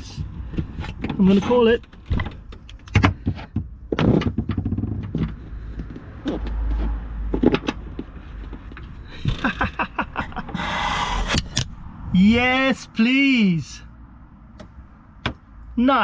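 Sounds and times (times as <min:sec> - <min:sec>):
knocks and scrapes of panel: 0:00.2 - 0:05.4.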